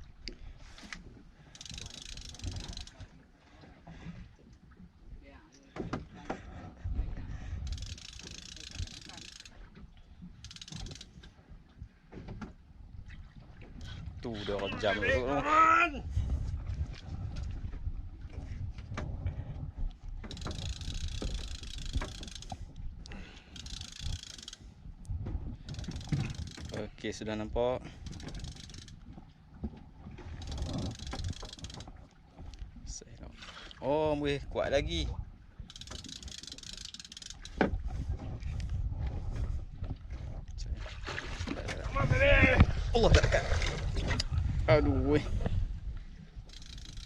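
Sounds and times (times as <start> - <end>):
boat rumble: 0.0 - 47.0
fishing reel clicking: 0.9 - 3.1, 7.6 - 9.6, 10.4 - 11.3, 20.3 - 24.7, 25.6 - 26.8, 28.0 - 29.0, 30.4 - 31.9, 35.6 - 37.6, 46.5 - 47.0.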